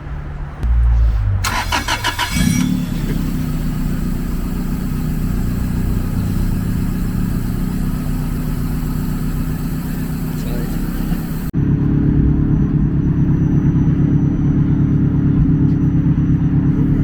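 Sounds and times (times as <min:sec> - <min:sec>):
car engine idling: 0:00.0 - 0:17.0
car engine starter cranking: 0:01.4 - 0:11.5.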